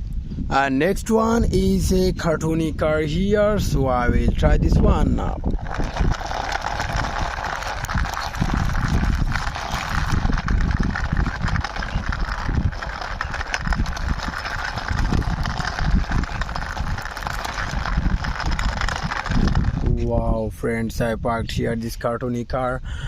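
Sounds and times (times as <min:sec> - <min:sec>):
wind buffeting microphone: 0:00.0 - 0:23.0
toy car wheels rolling: 0:03.6 - 0:21.1.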